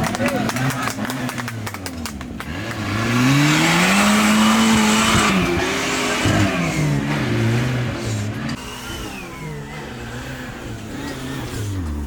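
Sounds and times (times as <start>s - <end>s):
engine revving hard: 2.4s - 12.0s.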